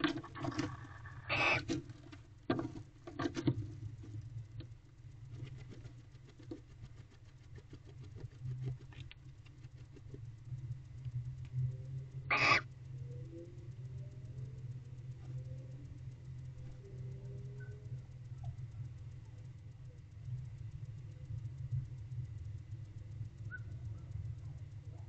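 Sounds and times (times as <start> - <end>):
owl scratching and tapping: 0.0 - 12.7
low steady hum: 0.0 - 25.0.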